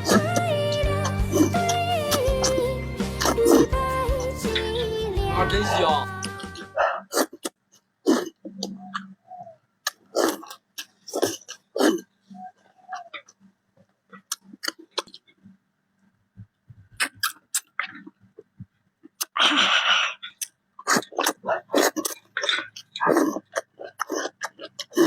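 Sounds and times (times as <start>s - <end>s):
wet chewing and mouth clicks: 7.0s - 9.1s, 9.8s - 13.4s, 14.1s - 15.5s, 17.0s - 18.2s, 19.0s - 25.0s.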